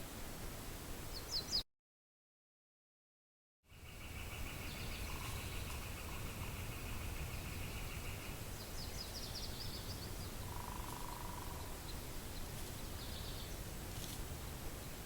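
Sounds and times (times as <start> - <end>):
small birds calling: 3.7 - 13.7.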